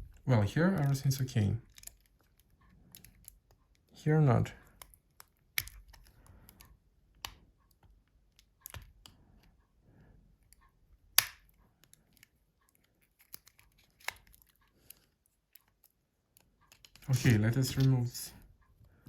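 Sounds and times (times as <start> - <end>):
phone parts clicking together: 1.6 - 3.9, 4.6 - 9.1, 10.4 - 18.1.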